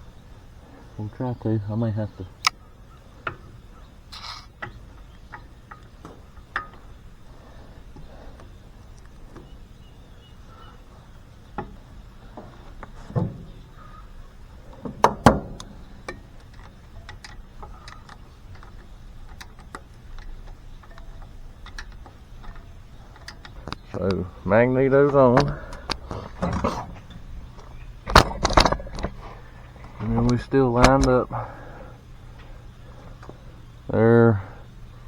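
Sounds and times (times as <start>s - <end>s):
light metal clicks of tools: 14.7s - 24.2s
metal knocks: 14.8s - 16.3s.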